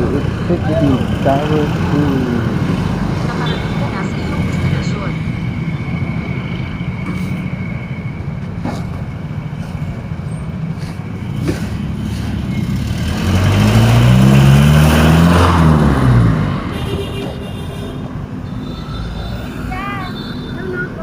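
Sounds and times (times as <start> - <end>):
engine and road rumble: 0.0 - 21.0
vehicle engine revving: 11.4 - 17.4.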